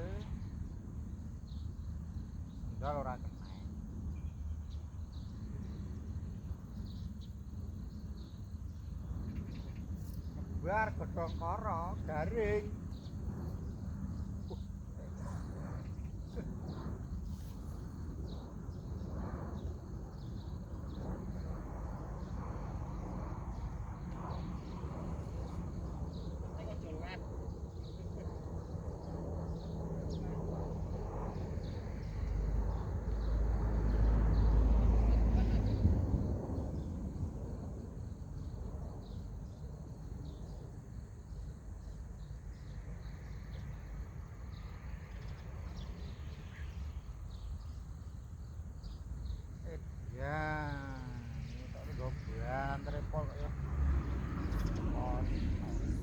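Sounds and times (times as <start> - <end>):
high insect drone: 0.0 - 56.0
low outdoor rumble: 10.2 - 42.6, 45.4 - 56.0.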